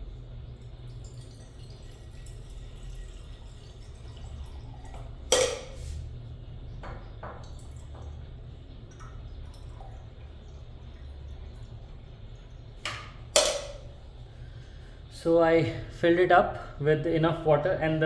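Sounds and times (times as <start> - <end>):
water filling glass carafe: 0.1 - 14.3.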